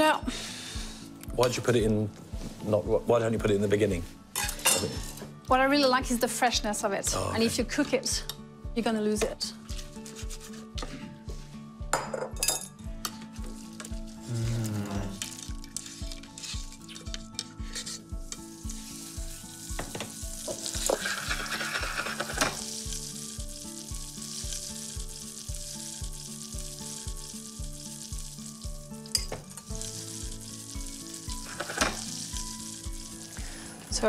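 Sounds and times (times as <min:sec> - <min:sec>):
background music with a beat: 0:08.4 - 0:21.1
food sizzling in a frying pan: 0:13.3 - 0:34.0.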